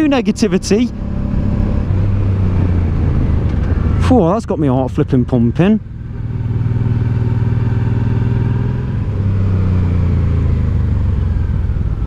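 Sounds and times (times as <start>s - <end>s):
motorcycle engine under way: 0.0s - 12.0s
wind rush: 0.6s - 5.3s.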